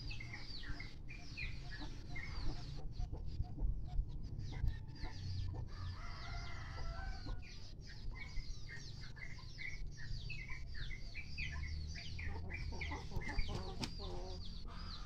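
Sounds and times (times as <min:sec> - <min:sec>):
chickens clucking: 0:00.0 - 0:15.0
rooster crowing: 0:05.7 - 0:07.3.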